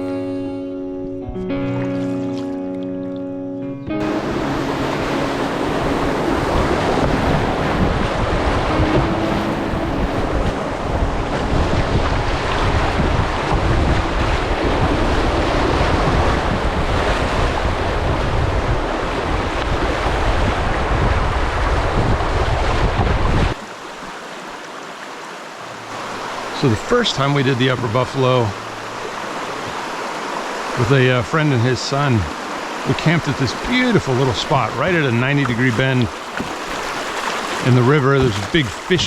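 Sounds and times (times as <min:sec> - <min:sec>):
rushing river water: 0:03.9 - 0:39.0
wind buffeting microphone: 0:04.0 - 0:23.6.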